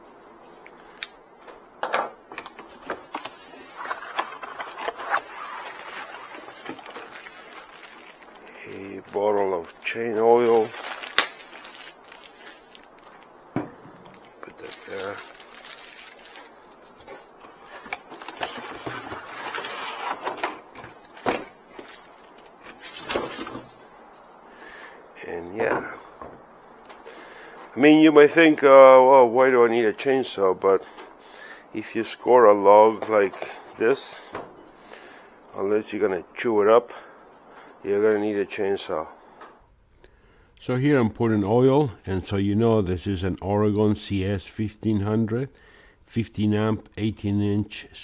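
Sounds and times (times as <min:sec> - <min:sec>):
cardboard and paper rustling: 0:02.4 - 0:13.3, 0:13.9 - 0:24.4.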